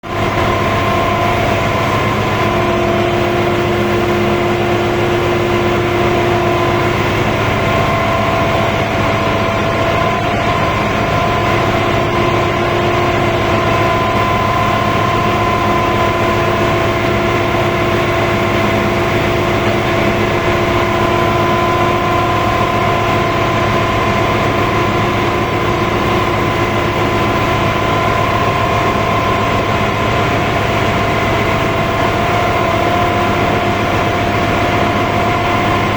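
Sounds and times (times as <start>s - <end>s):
engine room machinery drone: 0.0s - 35.9s
machinery whining tones: 0.1s - 35.9s.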